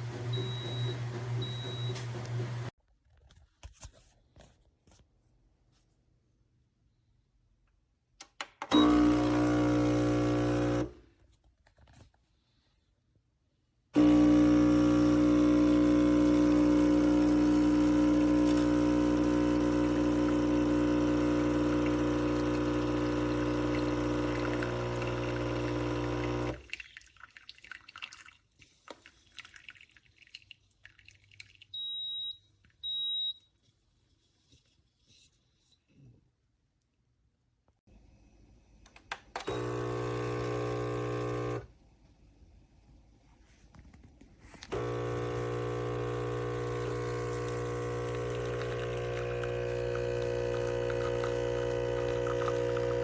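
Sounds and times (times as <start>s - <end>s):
espresso machine pump humming: 8.7s - 10.9s, 14.0s - 26.6s, 39.5s - 41.7s, 44.6s - 53.0s.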